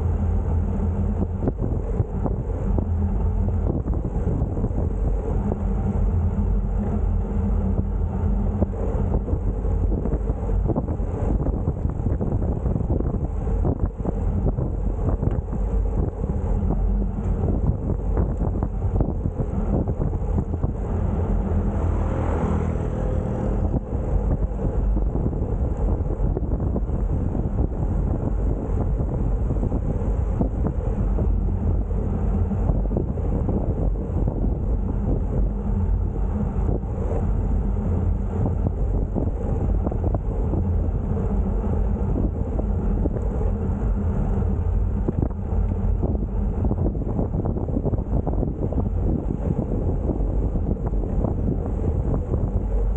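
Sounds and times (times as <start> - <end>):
wind buffeting microphone: 0.0 - 52.9
vehicle engine passing: 18.9 - 26.4.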